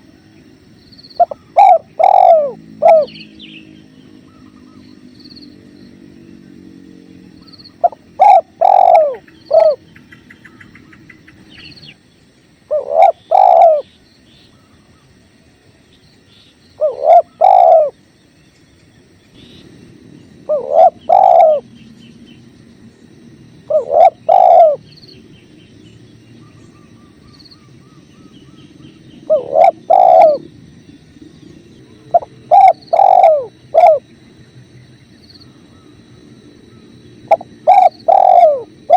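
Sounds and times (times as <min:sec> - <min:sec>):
dove cooing: 0:01.2 - 0:05.0, 0:07.4 - 0:11.8, 0:12.7 - 0:13.9, 0:16.8 - 0:18.0, 0:19.6 - 0:22.1, 0:23.1 - 0:25.3, 0:26.4 - 0:34.2, 0:35.4 - 0:38.9
faint small bird chirps: 0:07.4 - 0:15.2, 0:15.9 - 0:19.7, 0:23.7 - 0:34.0.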